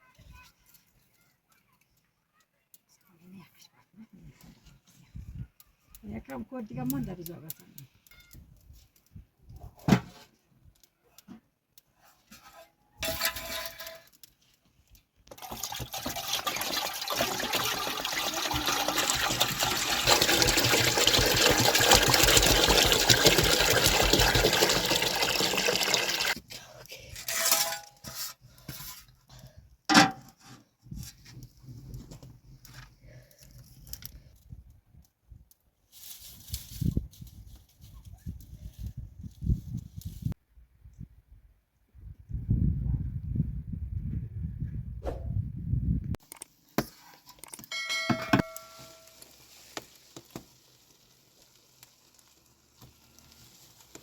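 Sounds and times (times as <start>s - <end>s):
water pouring: 15.2s - 26.4s, 47.4s - 54.0s.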